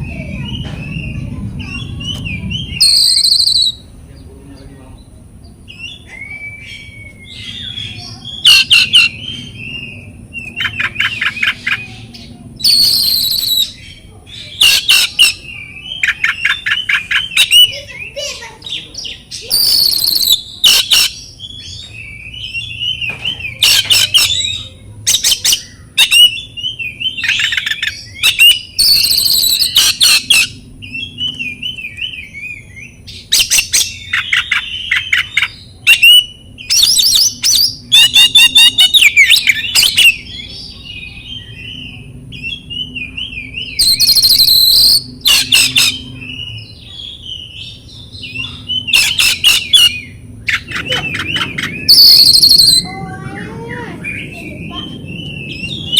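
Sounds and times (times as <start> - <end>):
songbird singing: 0.0 - 55.9.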